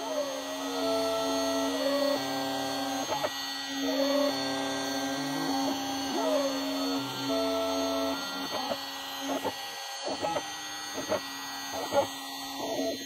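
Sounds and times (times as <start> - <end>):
spindle humming: 0.0 - 13.0
stepper motors whining: 0.0 - 13.0.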